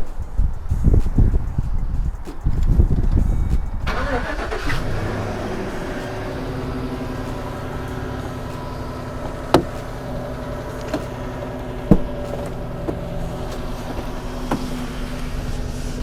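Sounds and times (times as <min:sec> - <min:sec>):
truck engine idling: 0:03.7 - 0:16.0.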